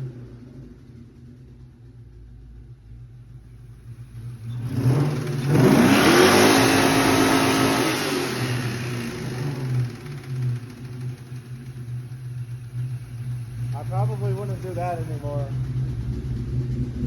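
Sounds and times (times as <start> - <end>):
car engine idling and revving: 0.0 - 17.0
engine knocking: 8.4 - 17.0.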